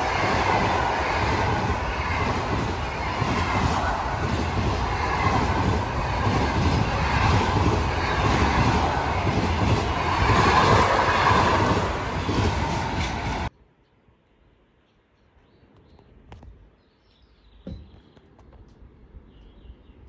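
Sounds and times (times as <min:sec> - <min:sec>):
train wheels rumbling on rails: 0:00.0 - 0:13.5.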